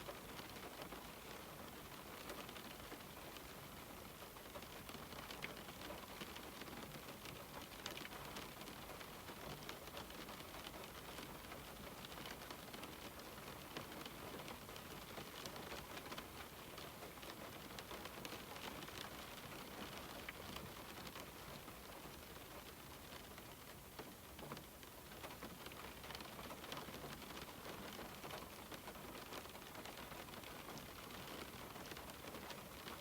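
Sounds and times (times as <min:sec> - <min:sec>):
rain hissing on a window: 0:00.0 - 0:33.0.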